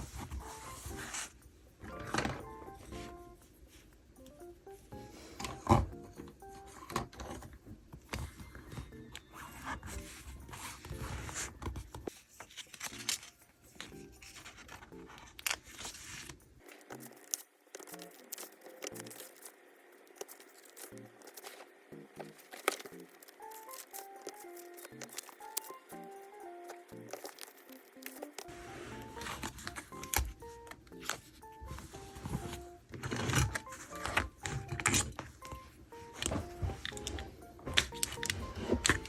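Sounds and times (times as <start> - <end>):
paper rustling: 0.0 - 3.8, 5.1 - 39.0
soft background music: 0.0 - 39.0
paper scraping and tearing: 9.4 - 21.7, 27.1 - 39.0.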